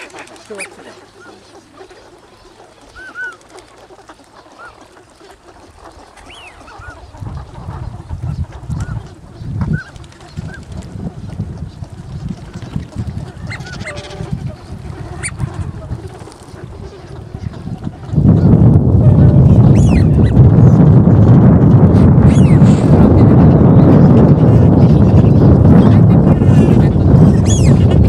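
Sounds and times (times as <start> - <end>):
waterfowl honking: 0.0 - 9.2, 13.2 - 18.1
low rumble: 18.2 - 28.0.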